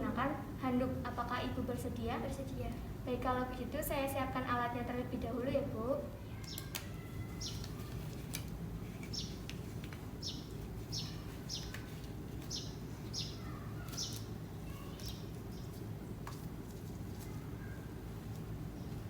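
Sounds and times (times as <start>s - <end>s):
low background hum: 0.0s - 19.0s
bird chirping: 6.4s - 7.9s, 9.0s - 9.5s, 10.2s - 15.8s.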